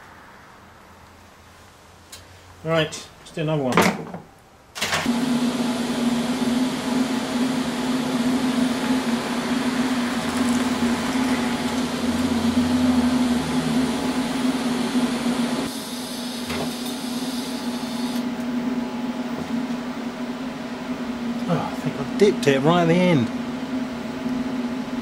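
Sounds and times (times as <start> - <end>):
welding arc hissing buzz: 5.0 - 18.3.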